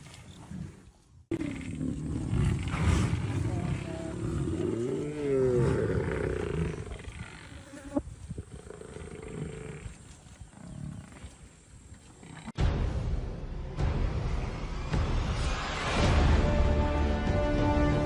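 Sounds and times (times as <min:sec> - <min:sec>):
leopard growling: 0:00.3 - 0:07.7, 0:08.4 - 0:12.6.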